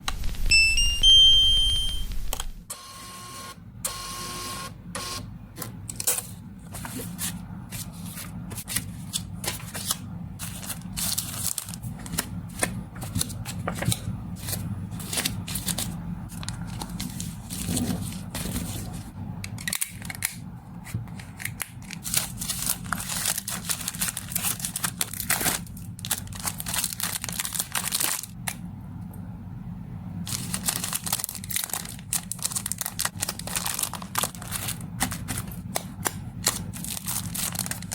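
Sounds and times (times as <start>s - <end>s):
steady low hum: 0.0s - 37.9s
plastic packaging crinkling: 6.0s - 19.0s, 19.6s - 20.4s, 21.1s - 28.6s, 30.3s - 37.9s.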